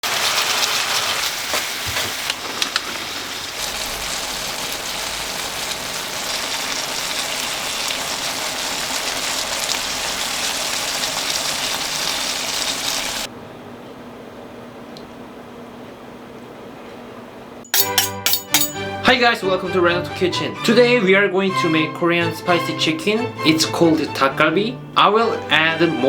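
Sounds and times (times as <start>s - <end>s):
food sizzling in a pan: 0.0s - 13.3s.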